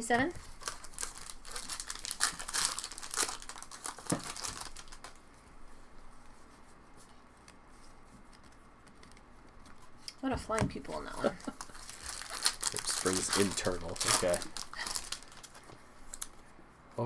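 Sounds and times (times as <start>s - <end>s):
wrappers crinkling and tearing: 0.4s - 5.3s, 10.9s - 16.4s
cards being handled: 10.8s - 16.4s.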